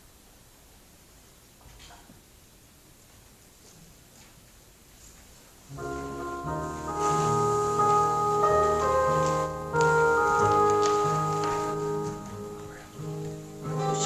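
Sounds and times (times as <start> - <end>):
church keyboard chords: 5.7 - 14.0.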